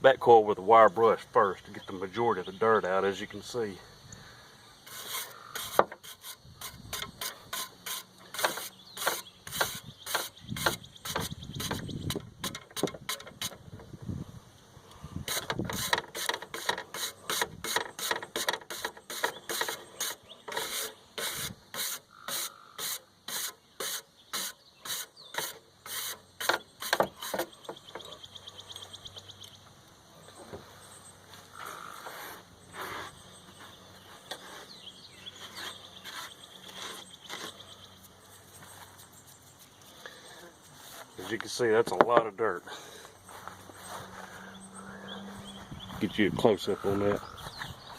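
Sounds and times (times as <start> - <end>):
wire brush scrubbing metal fins: 4.9 - 11.8, 15.3 - 27.5.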